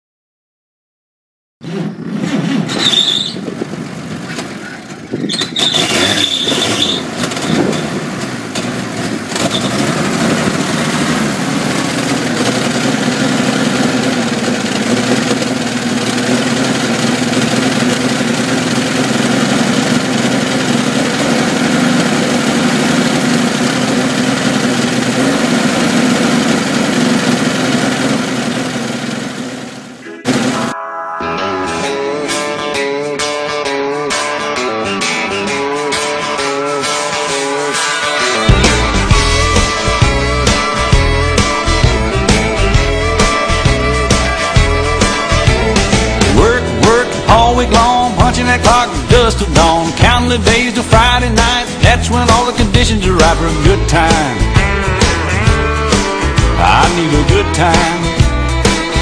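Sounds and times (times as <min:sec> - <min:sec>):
high squeals: 0:02.5 - 0:03.5, 0:04.6 - 0:08.0, 0:09.4 - 0:10.0
pickup engine starting and idling: 0:02.7 - 0:30.8.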